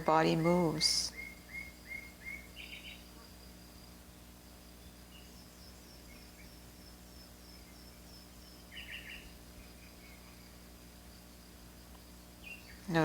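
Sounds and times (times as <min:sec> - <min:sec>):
bird chirps: 0:00.0 - 0:11.8, 0:12.4 - 0:13.0
high insect trill: 0:00.0 - 0:13.0.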